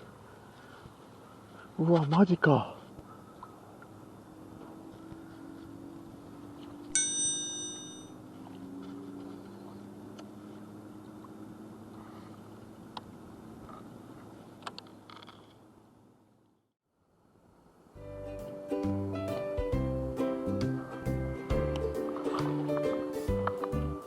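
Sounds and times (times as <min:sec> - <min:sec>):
bell-like metallic ring: 0:06.9 - 0:08.2.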